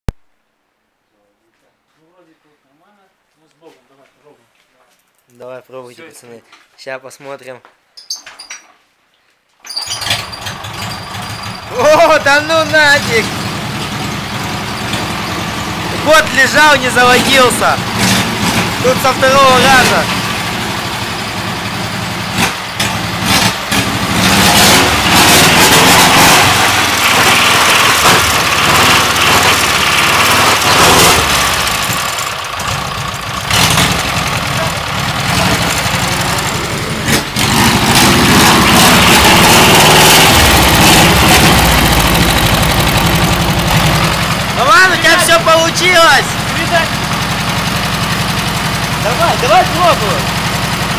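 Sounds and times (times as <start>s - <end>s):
engine running unevenly: 10.1s - 50.9s.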